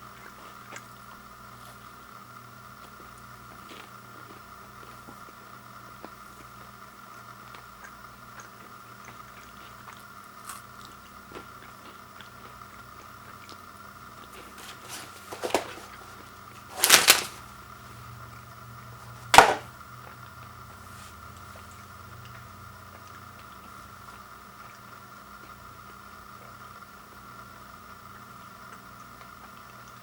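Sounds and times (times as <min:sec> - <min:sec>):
faint steady hum: 0:00.0 - 0:30.0
packaging crinkling: 0:14.3 - 0:17.5, 0:19.3 - 0:19.7.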